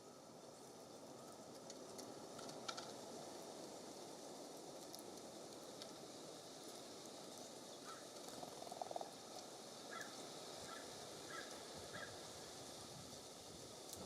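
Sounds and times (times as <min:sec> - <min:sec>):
steady breeze: 0:00.0 - 0:14.0
birds calling: 0:07.3 - 0:12.5.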